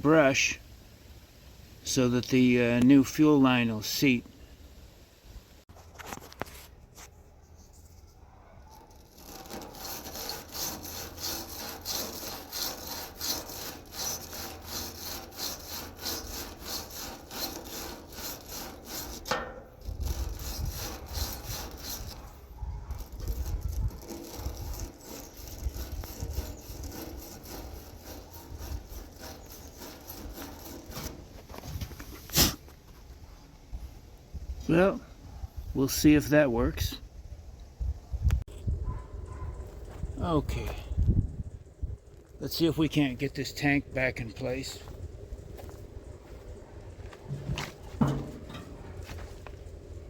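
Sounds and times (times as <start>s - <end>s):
wire brush scrubbing metal: 8.6s - 32.6s, 47.1s - 50.0s.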